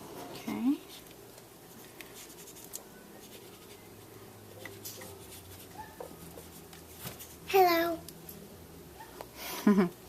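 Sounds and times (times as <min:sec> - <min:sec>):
colouring tool scratching on card: 0:02.2 - 0:04.0, 0:04.6 - 0:07.4.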